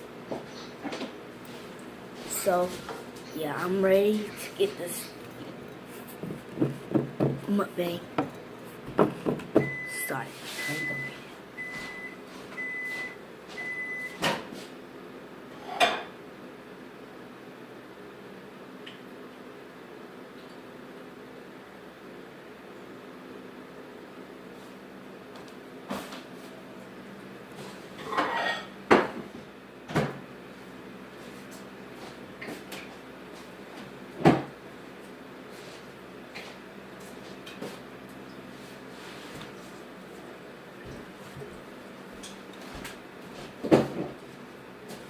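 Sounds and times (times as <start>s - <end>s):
dishes knocking on table: 6.2s - 7.5s, 8.2s - 9.7s
microwave oven beeping: 9.4s - 14.6s
dishes scraping on table: 28.0s - 28.7s.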